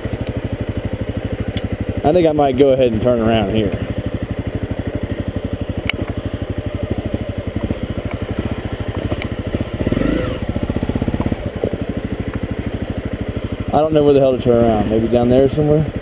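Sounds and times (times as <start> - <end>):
motorcycle engine puttering: 0.0 - 16.0.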